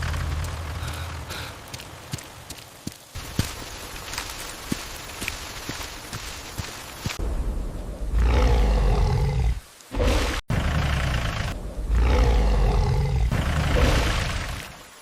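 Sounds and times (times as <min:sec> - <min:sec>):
deep monster roars: 0:08.1 - 0:14.5.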